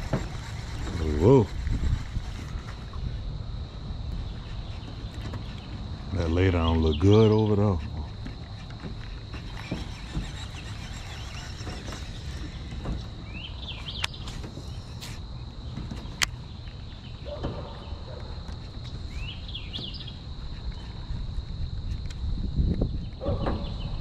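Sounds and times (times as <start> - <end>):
high-pitched whine: 0.0 - 7.8
low wind rumble: 0.0 - 24.0
bird calling: 4.2 - 21.0.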